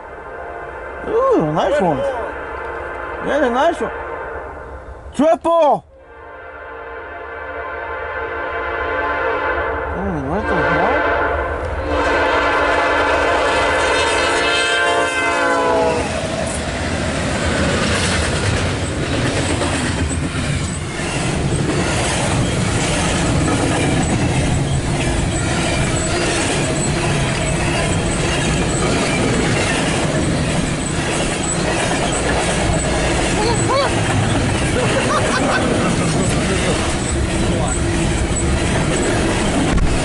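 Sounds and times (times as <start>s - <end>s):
locomotive horn: 0.0s - 5.0s, 6.0s - 16.5s
freight train rumbling past: 0.0s - 5.2s, 5.8s - 40.0s.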